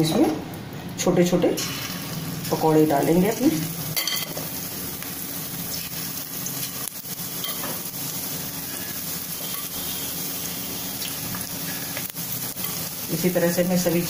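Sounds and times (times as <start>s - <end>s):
fritters sizzling in hot oil: 1.4s - 14.0s.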